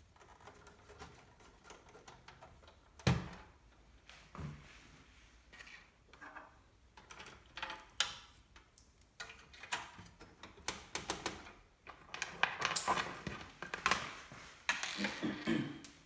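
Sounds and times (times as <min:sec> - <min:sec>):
computer parts clicking and rustling: 0:00.0 - 0:03.6, 0:06.2 - 0:15.0.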